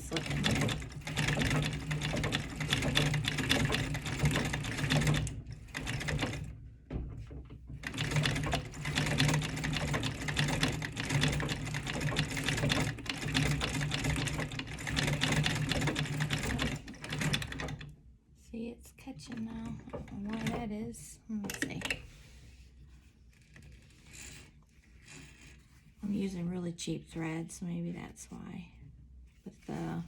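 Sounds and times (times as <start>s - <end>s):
treadle sewing machine clattering: 0.0s - 6.6s, 7.8s - 17.9s, 19.6s - 20.7s.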